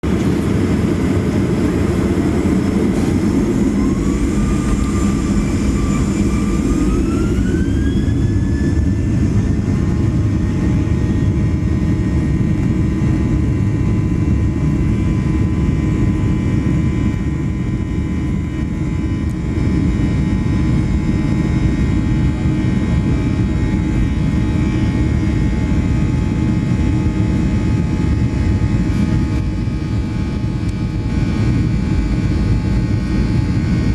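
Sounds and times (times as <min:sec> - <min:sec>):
jet engines spooling up: 0:00.1 - 0:14.3.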